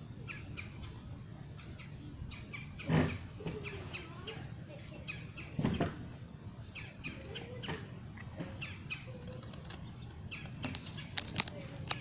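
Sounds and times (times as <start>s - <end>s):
bird chirping: 8.5s - 12.0s.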